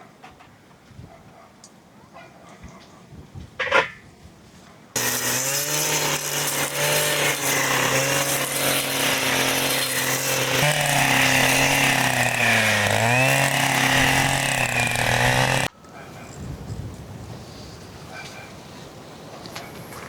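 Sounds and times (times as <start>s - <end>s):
small motor running: 5.0s - 15.7s.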